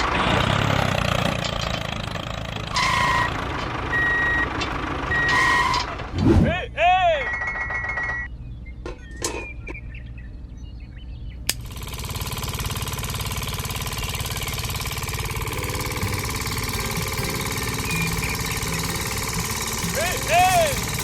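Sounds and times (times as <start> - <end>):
small tractor engine rattling: 0.0 - 6.2, 11.6 - 21.0.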